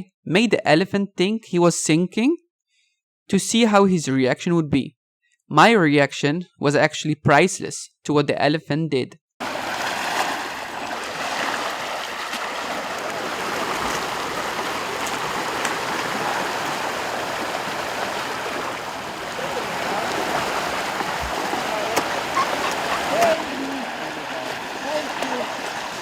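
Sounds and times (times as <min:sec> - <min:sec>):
rushing water: 0:09.4 - 0:26.0.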